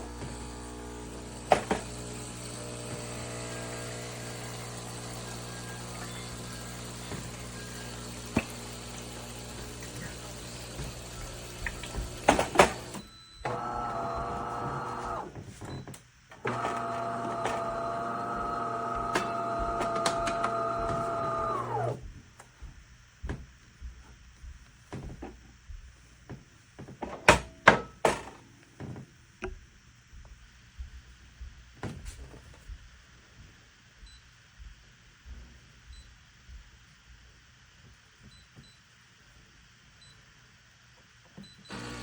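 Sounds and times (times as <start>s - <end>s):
espresso machine pump humming: 0.0s - 15.3s, 16.5s - 22.0s, 41.7s - 42.0s.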